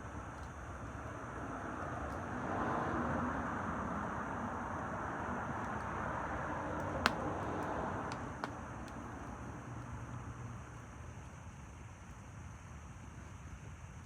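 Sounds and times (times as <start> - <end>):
low rumbling fire noise: 0.0 - 14.0
bonfire crackles: 5.5 - 9.9.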